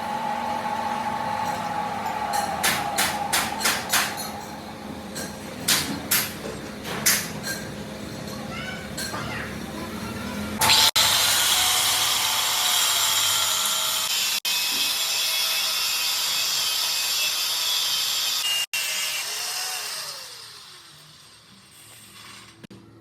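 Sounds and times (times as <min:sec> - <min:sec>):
power tool whining on metal: 0:10.6 - 0:22.6.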